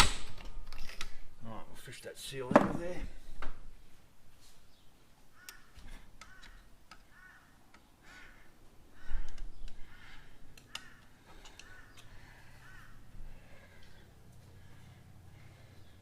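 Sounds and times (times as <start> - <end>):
crow cawing: 5.3 - 14.0
hand tools clicking and knocking: 10.5 - 12.2.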